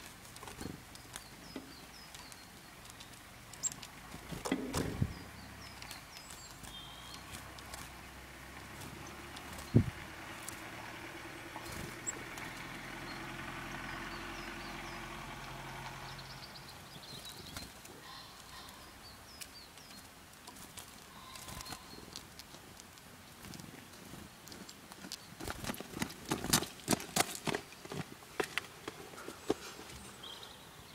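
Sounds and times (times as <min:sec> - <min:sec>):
small birds chirping: 0:00.0 - 0:30.9
fast flutter: 0:05.8 - 0:12.6.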